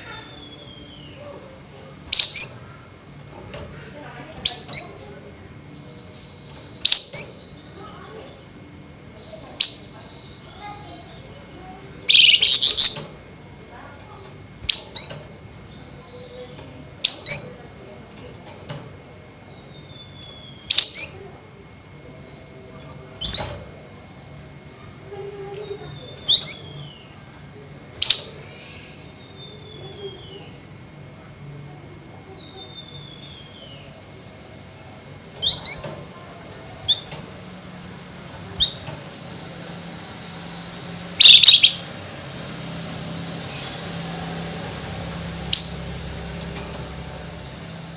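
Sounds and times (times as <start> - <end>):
sharp rising bird calls: 12.1 - 13.0, 39.7 - 42.2, 42.9 - 46.3.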